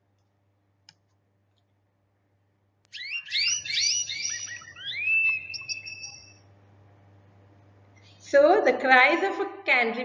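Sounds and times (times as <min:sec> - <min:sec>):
canary singing: 0:02.9 - 0:06.5.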